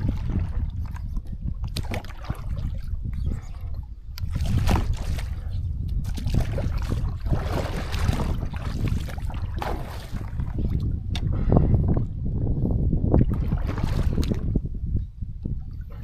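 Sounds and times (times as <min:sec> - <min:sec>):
water splashing around a boat: 0:00.0 - 0:11.4, 0:13.2 - 0:14.6
wind rumble on microphone: 0:00.0 - 0:16.0.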